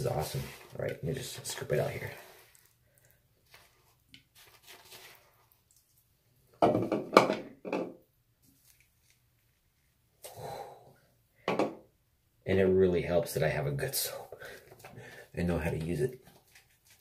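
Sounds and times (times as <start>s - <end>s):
lather scraping in bowl: 0.0s - 6.0s.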